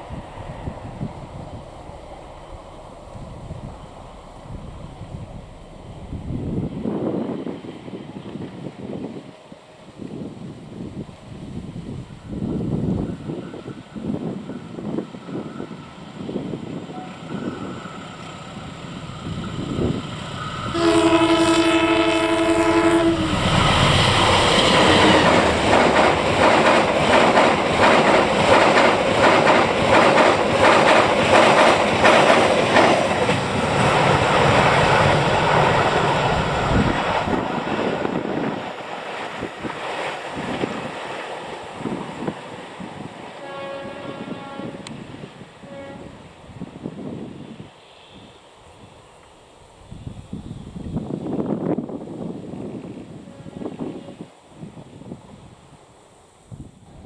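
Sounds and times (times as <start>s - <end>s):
train horn: 20.5s - 25.5s, 43.4s - 46.5s, 53.1s - 54.3s
train wheels clacking on rails: 22.8s - 43.4s.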